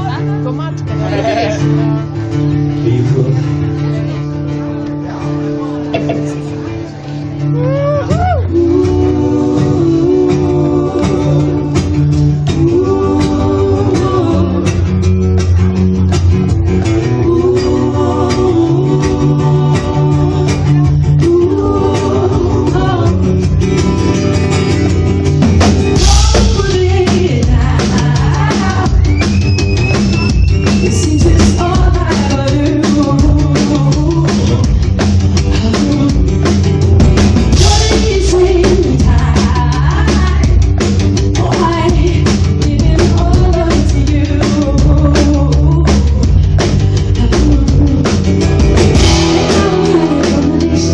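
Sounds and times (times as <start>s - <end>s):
guitar: 0.0s - 50.9s
person singing: 7.4s - 15.0s, 16.9s - 23.4s, 26.0s - 29.3s, 30.7s - 36.8s, 37.5s - 50.9s
drum kit: 7.6s - 50.9s.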